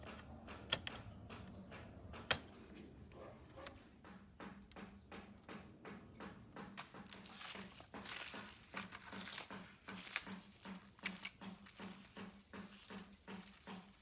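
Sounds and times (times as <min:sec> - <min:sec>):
sharp clicks: 0:00.0 - 0:02.6
plastic wrap crinkling: 0:06.8 - 0:14.0.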